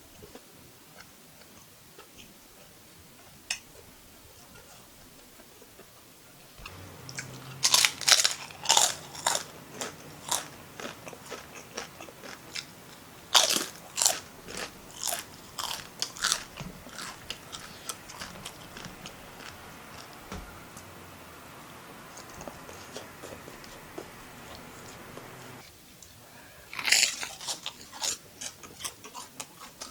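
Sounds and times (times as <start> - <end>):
soft chewing: 0.1 - 20.9, 22.0 - 29.9
crunchy bites: 6.6 - 20.2, 26.7 - 29.9.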